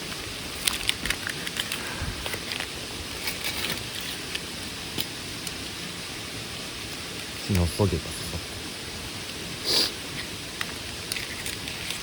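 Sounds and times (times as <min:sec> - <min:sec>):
rushing mountain stream: 0:00.0 - 0:12.0
sharp clicks and crackles: 0:00.1 - 0:05.6, 0:10.1 - 0:12.0.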